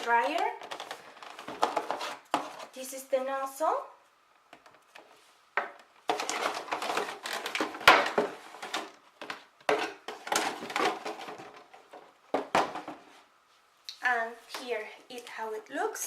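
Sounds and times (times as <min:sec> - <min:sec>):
packaging rustling and crinkling: 0:00.2 - 0:02.8, 0:06.0 - 0:13.2.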